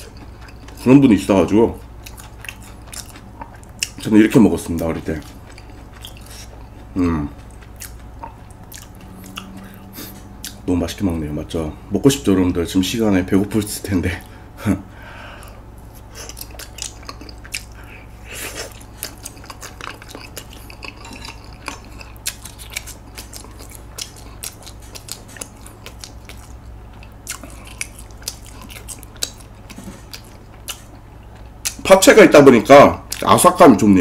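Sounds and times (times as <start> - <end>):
chewing with wet mouth clicks: 0.0 - 10.7, 16.2 - 31.9, 33.0 - 33.3.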